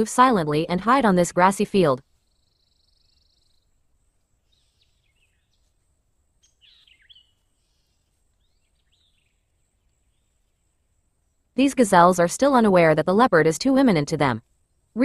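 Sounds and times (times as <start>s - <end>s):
high bird chirps: 6.4s - 9.3s.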